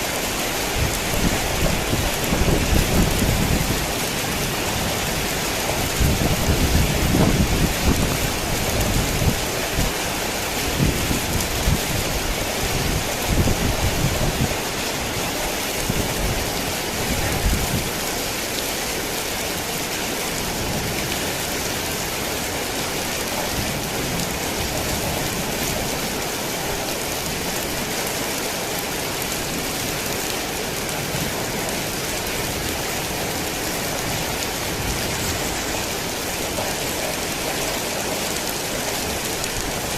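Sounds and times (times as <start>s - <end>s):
heavy rain falling: 0.0s - 39.9s
thunder rolling: 0.8s - 9.4s.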